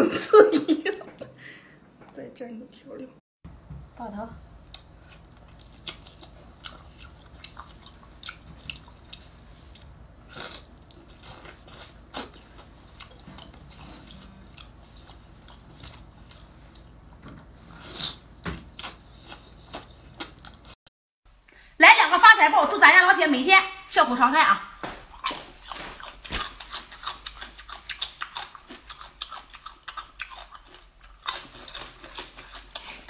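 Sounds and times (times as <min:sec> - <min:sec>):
person chewing wetly: 0:04.7 - 0:17.0, 0:25.1 - 0:33.0.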